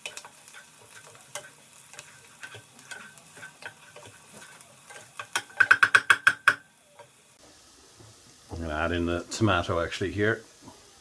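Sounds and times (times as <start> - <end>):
small crackles and pops: 0.0 - 8.2
onions sizzling in frying pan: 0.0 - 11.0.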